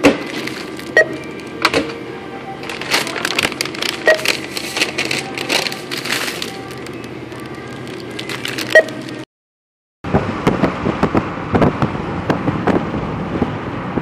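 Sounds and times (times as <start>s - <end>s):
plastic packaging crinkling: 0.2s - 1.6s, 2.6s - 9.3s
scanner beep: 0.9s - 1.4s, 4.0s - 4.4s, 8.7s - 9.0s.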